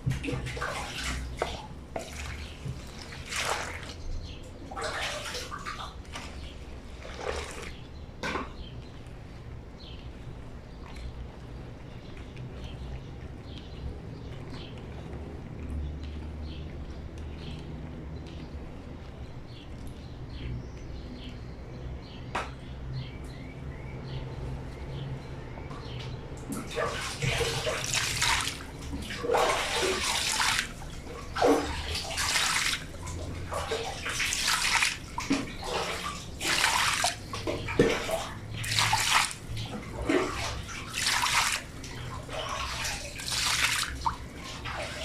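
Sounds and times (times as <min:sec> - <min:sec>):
blanket washed by hand: 0:00.0 - 0:08.0, 0:26.5 - 0:45.0
steady low hum: 0:00.0 - 0:45.0
water splashing and sloshing: 0:00.0 - 0:45.0
small birds chirping: 0:00.3 - 0:45.0.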